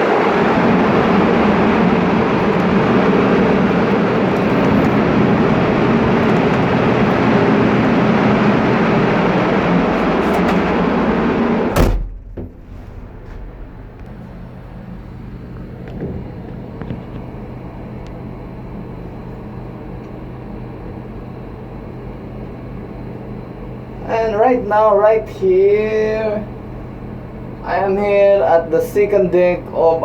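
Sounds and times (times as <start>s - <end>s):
engine room machinery din: 0.0s - 30.0s
sharp knock: 11.7s - 14.0s.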